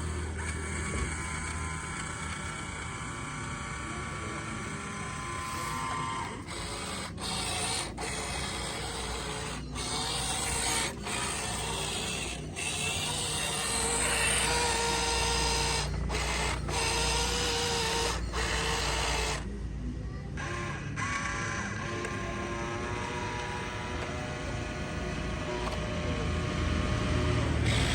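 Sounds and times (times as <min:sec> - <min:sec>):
electric motors and gearing whirring: 0:00.0 - 0:27.9.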